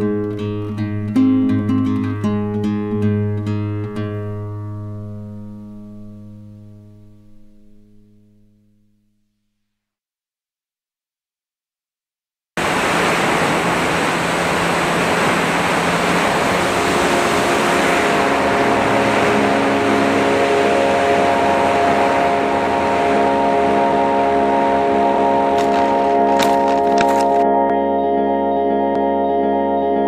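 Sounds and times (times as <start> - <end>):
electric motor and propeller whine: 12.6 - 27.4.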